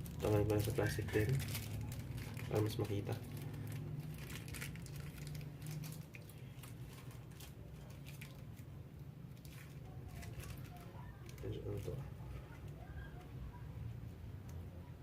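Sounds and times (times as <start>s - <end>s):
plastic wrapping crinkling: 0.0s - 13.3s.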